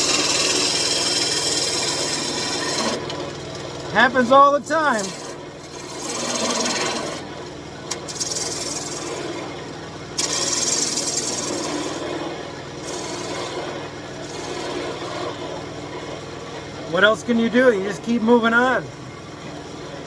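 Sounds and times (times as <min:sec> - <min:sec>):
turning tool scraping wood: 0:00.0 - 0:07.3, 0:07.9 - 0:09.5, 0:10.2 - 0:16.1
wood lathe motor hum: 0:00.0 - 0:20.0.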